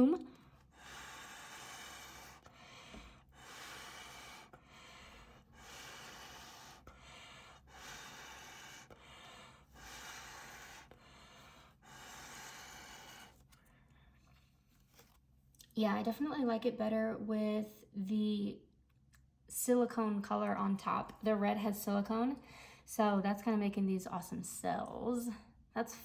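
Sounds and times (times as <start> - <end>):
person blowing air puffs: 0.0 - 13.5
person breathing: 0.0 - 14.4, 22.4 - 22.9.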